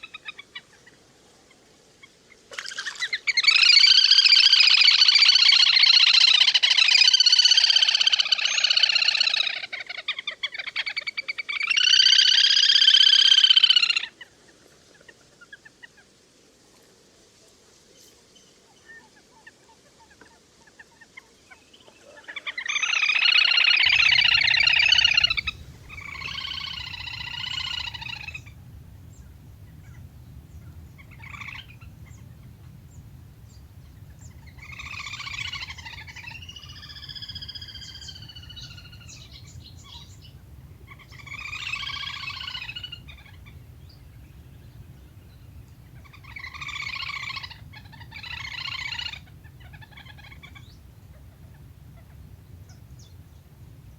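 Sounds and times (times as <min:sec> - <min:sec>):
waterbird chattering calls: 0:22.3 - 0:43.8, 0:45.8 - 0:52.8
low steady hum: 0:23.8 - 0:53.9.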